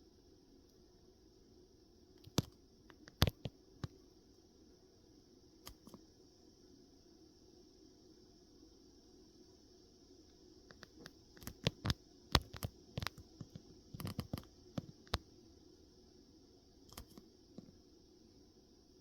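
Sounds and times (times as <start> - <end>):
sharp clicks and knocks: 2.2 - 3.5, 10.7 - 15.2.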